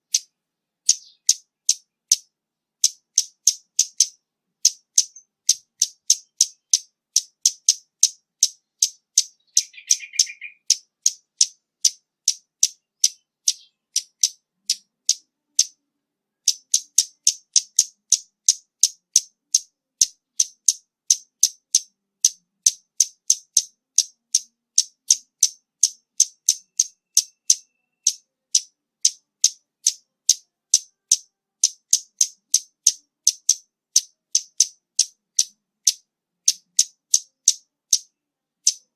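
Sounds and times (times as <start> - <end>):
bird calling with high ticks: 0.0 - 38.9
short low bird chirp: 9.4 - 10.8.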